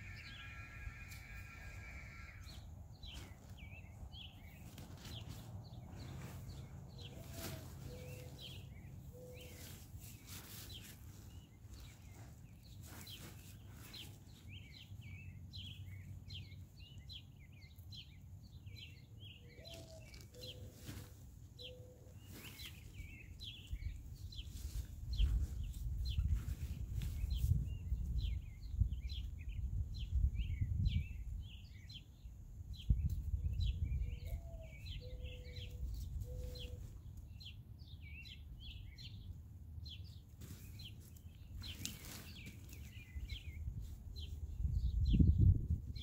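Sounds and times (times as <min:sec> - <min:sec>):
low bird call: 0:00.0 - 0:03.5
small birds chirping: 0:00.0 - 0:46.0.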